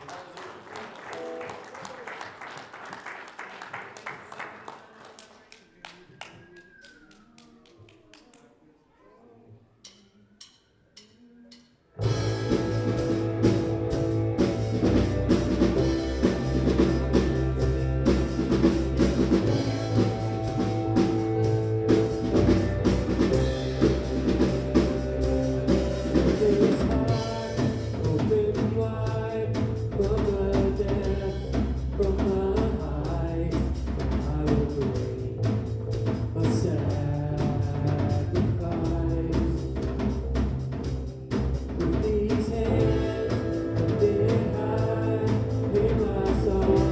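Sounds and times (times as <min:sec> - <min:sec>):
band playing with drums and bass: 0:12.0 - 0:46.9
person singing: 0:26.1 - 0:35.7, 0:41.8 - 0:46.9.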